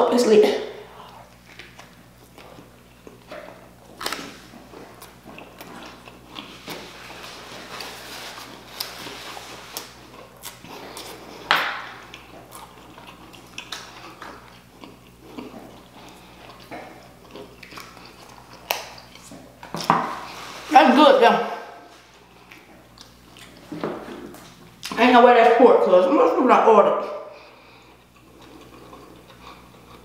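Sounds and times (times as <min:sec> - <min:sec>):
wet mouth chewing smacks: 0:09.7 - 0:19.3.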